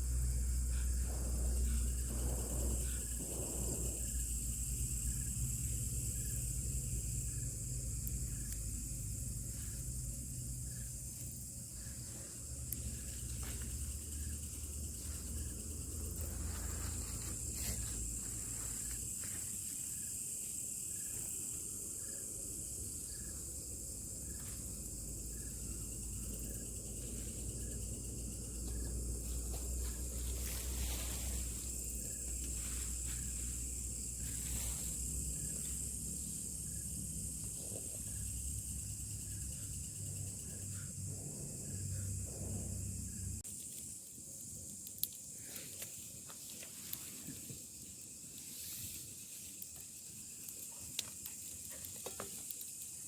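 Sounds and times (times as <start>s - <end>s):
low steady rumble: 0.0s - 19.1s, 22.5s - 43.4s
insects buzzing: 0.0s - 53.0s
short insect chirp: 0.0s - 53.0s.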